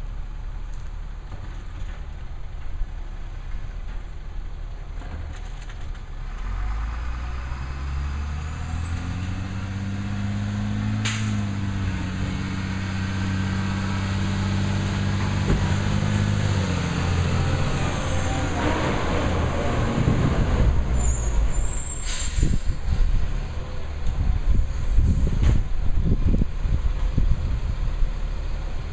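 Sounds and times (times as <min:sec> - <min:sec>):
garbage truck engine revving: 0:06.3 - 0:23.4
air brake hiss: 0:21.1 - 0:22.9.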